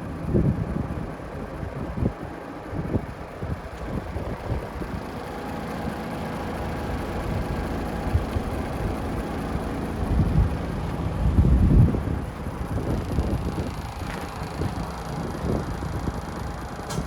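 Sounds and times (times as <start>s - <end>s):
wind rumbling on microphone: 0.0s - 5.1s, 10.0s - 17.0s
truck diesel engine idling: 0.0s - 17.0s.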